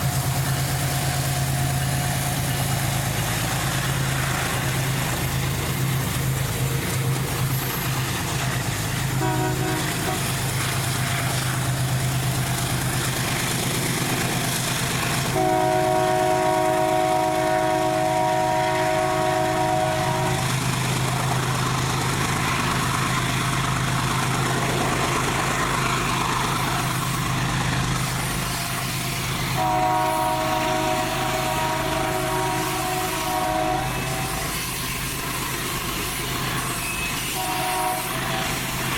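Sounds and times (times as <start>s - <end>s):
locomotive air horn: 9.1s - 10.4s, 15.3s - 20.5s, 29.5s - 35.0s, 36.7s - 38.8s.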